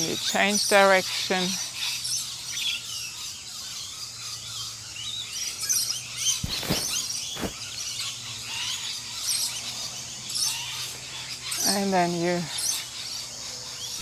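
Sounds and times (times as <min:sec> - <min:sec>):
birds chirping and calling: 0:00.1 - 0:14.0
short thumps: 0:06.4 - 0:07.6.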